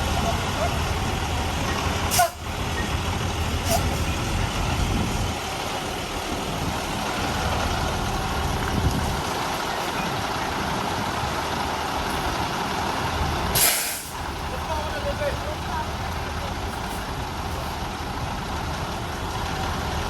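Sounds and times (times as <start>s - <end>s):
diesel truck engine running: 0.0s - 20.0s
air hiss burst: 13.5s - 14.2s.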